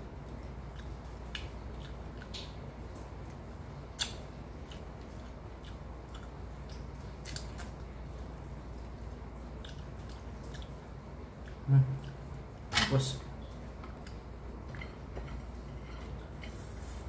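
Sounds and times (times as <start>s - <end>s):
steady low hum: 0.0s - 17.0s
biting and chewing meat: 0.1s - 12.7s.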